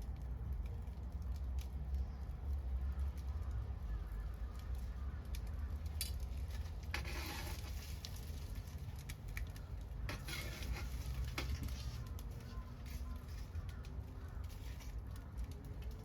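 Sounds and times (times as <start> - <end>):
bonfire crackling: 0.0 - 16.0
fire hissing bursts: 6.6 - 8.9.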